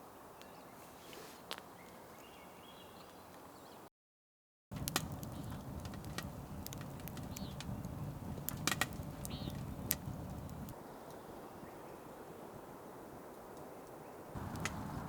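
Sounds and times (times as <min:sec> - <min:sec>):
faint bird chirp: 0:00.0 - 0:03.9, 0:07.3 - 0:07.6, 0:09.2 - 0:09.7
wood fire crackling: 0:04.7 - 0:10.8, 0:13.3 - 0:15.0.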